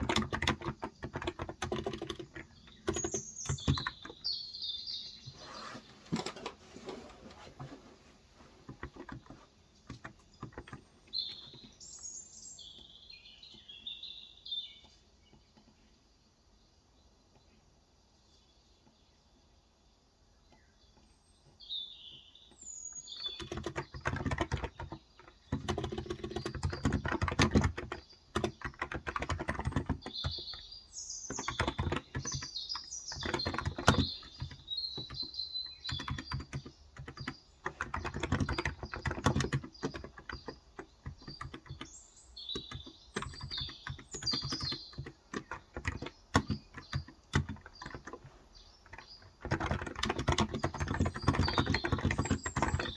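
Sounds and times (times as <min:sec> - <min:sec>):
keyboard typing: 0:00.0 - 0:04.3, 0:08.6 - 0:11.8, 0:23.2 - 0:30.7, 0:31.3 - 0:52.9
birds chirping: 0:00.0 - 0:52.9.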